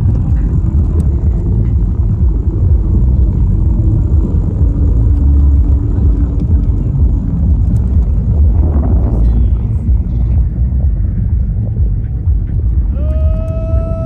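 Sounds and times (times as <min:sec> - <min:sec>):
faint steady hum: 0:00.0 - 0:14.0
wind buffeting microphone: 0:00.0 - 0:14.0.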